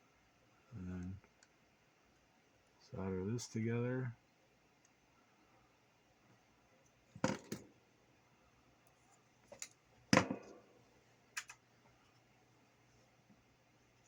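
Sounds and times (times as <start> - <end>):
small tools clicking and tapping: 11.4 - 11.6.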